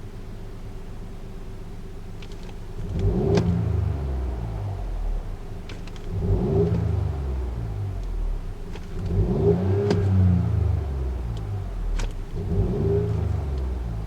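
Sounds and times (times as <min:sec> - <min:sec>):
car engine revving: 0:02.8 - 0:14.0.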